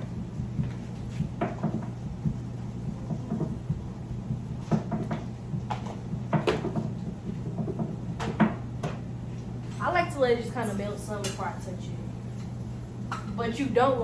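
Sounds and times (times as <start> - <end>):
steady low hum: 0.0 - 14.0
kitchen knocks and clacks: 0.6 - 3.8, 4.6 - 9.0.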